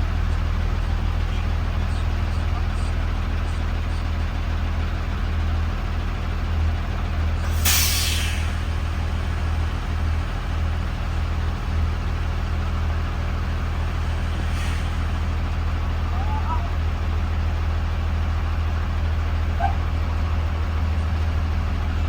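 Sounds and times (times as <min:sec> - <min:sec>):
bus engine drone: 0:00.0 - 0:22.0
air brakes hissing: 0:07.4 - 0:16.0.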